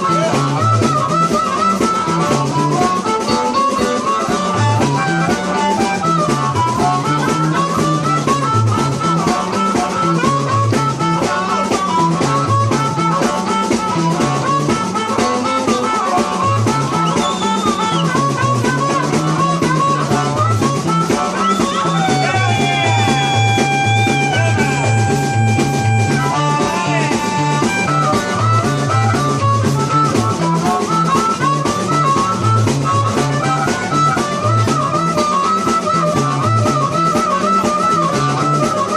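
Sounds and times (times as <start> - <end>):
bass line: 0.0 - 38.9
drums: 0.0 - 38.9
lead electric guitar: 0.0 - 38.9.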